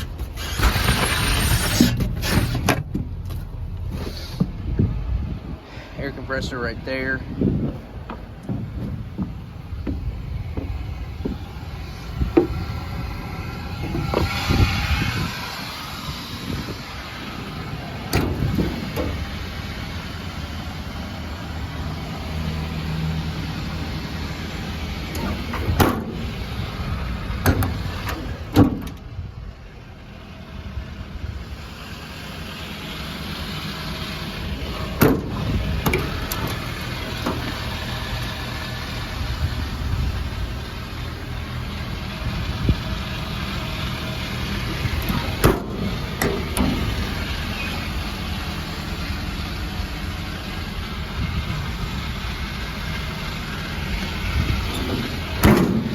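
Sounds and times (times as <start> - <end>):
engine idling: 0.0 - 55.9
sharp thumps: 7.5 - 15.2.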